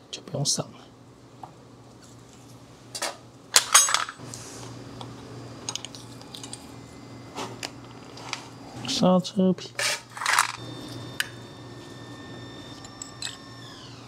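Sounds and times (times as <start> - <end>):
metal tools clinking: 3.6 - 4.2, 9.8 - 10.6, 12.7 - 13.4
low hum: 10.2 - 14.0.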